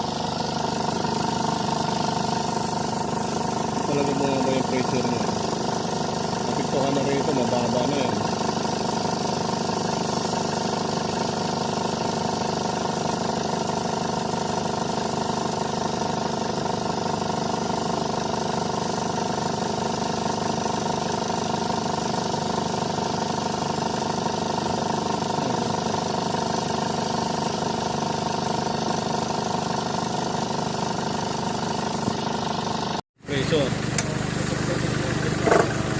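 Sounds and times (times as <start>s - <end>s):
engine idling: 0.0s - 35.9s.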